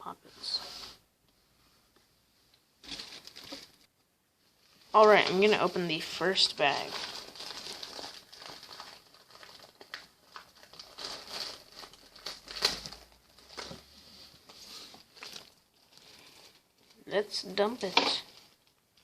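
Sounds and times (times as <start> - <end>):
packaging crinkling: 2.8 - 3.9, 6.5 - 13.8, 14.4 - 17.0, 17.8 - 19.0.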